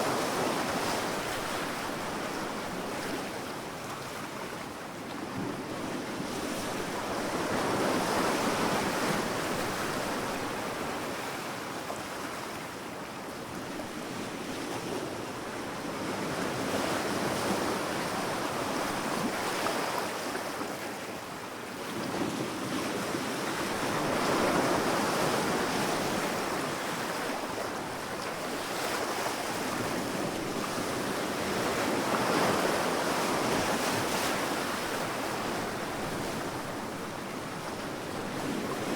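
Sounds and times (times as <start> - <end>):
sea waves breaking on sand: 21.9 - 38.9.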